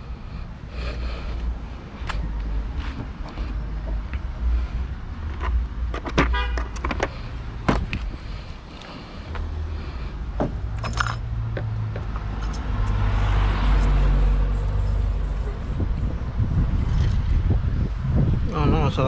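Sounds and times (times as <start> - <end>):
metal tools clinking: 10.8 - 11.2
socket wrench ratcheting: 10.8 - 11.3, 12.0 - 14.0.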